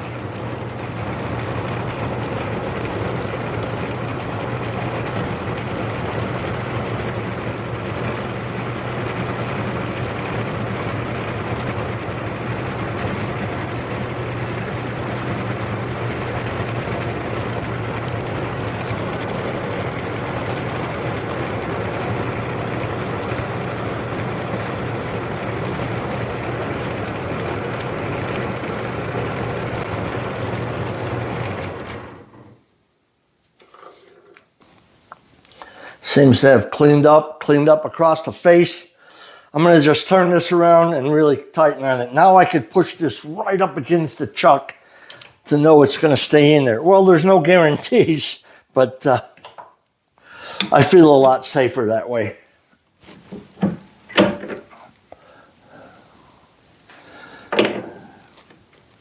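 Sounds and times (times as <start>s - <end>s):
metal lathe cutting metal: 0.0s - 32.5s
motor hum: 0.0s - 32.6s, 53.3s - 59.0s.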